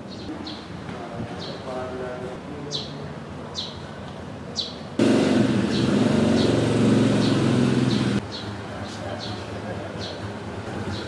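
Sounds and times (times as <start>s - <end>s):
bird chirping: 2.7s - 3.8s, 4.6s - 4.8s, 5.6s - 9.4s
loud rumbling noise: 5.0s - 8.2s.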